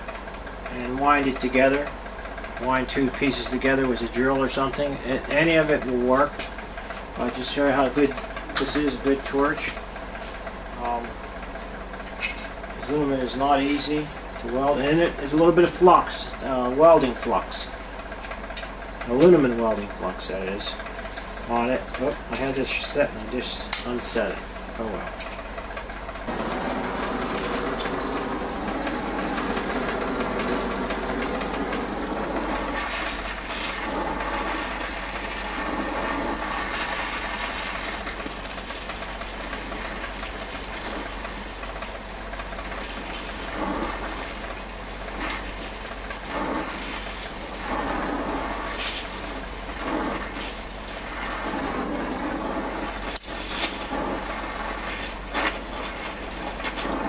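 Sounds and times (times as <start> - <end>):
torch flame hissing: 20.9 - 22.3, 23.2 - 57.0.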